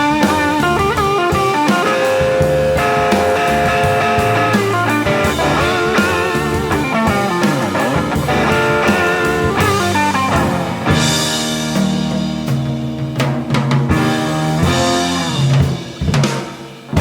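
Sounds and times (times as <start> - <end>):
electric guitar solo: 0.0 - 13.0
bass and drums: 0.0 - 17.0.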